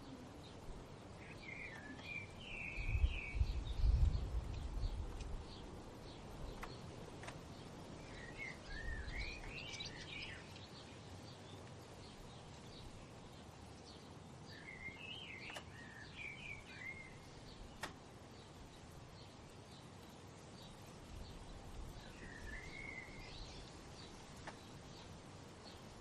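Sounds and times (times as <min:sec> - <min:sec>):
low outdoor background: 0:00.0 - 0:26.0
songbird warbling: 0:01.2 - 0:04.0, 0:08.0 - 0:10.8.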